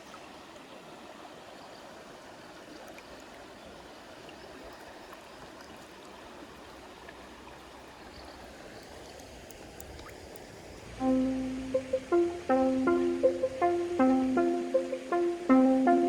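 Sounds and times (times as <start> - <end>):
stream running water: 0.0 - 16.0
faint ticks: 8.1 - 10.9.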